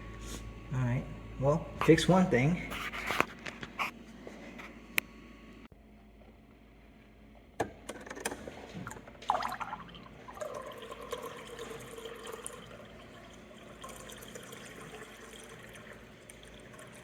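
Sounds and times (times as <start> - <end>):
pump humming: 8.5 - 17.0
water flowing through filter: 8.8 - 17.0.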